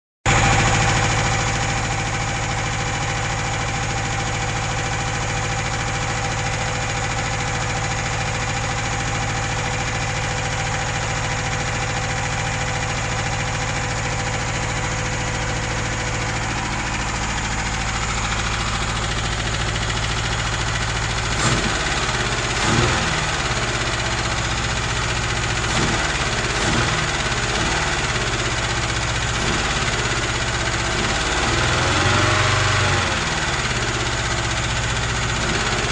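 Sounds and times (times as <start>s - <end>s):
car engine idling and revving: 0.3s - 35.9s.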